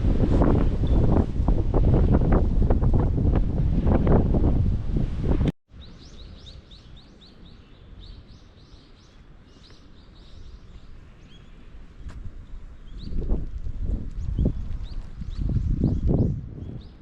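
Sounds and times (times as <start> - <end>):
wind on microphone: 0.0 - 7.0, 10.2 - 17.0
small bird singing: 5.7 - 13.3, 13.9 - 17.0.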